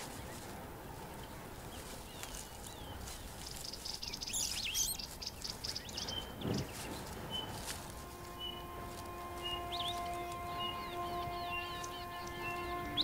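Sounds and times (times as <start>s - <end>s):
birds chirping: 0.0s - 13.0s
rapid bird trill: 1.8s - 13.0s.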